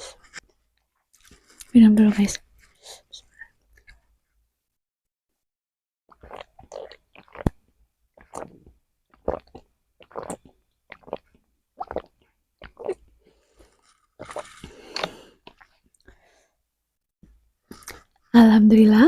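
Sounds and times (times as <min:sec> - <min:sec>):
person gulping a drink: 0:06.1 - 0:07.6, 0:08.2 - 0:16.1, 0:17.7 - 0:18.3.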